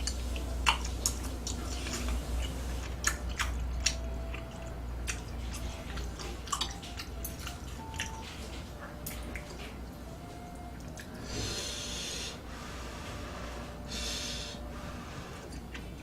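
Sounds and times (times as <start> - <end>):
faint chewing clicks: 0.0 - 11.2.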